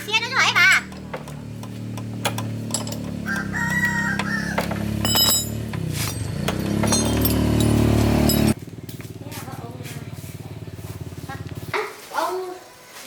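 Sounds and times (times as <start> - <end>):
motorbike engine running: 0.0 - 12.0
rooster crowing: 3.1 - 5.0.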